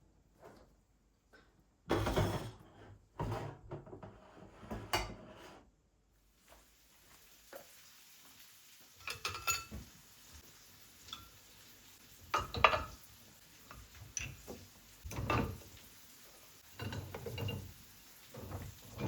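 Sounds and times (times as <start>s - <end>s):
dishes and utensils knocking: 9.0s - 9.9s, 12.3s - 13.0s, 13.7s - 15.7s, 16.7s - 17.8s.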